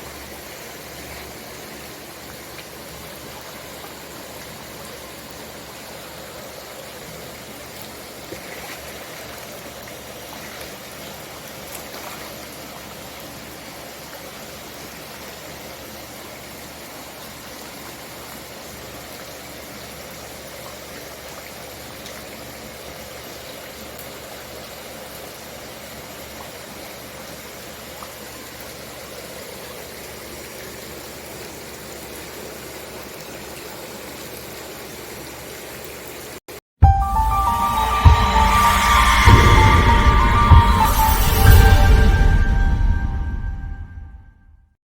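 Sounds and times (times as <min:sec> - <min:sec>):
faint water splashes: 0:00.0 - 0:13.4
water rushing: 0:37.0 - 0:43.9.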